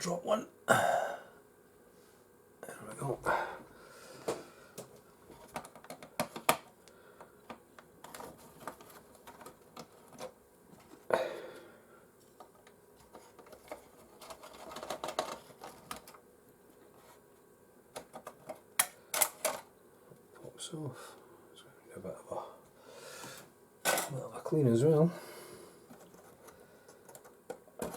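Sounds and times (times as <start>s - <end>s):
plastic parts being handled: 5.3s - 6.7s, 7.4s - 11.0s, 12.3s - 16.2s.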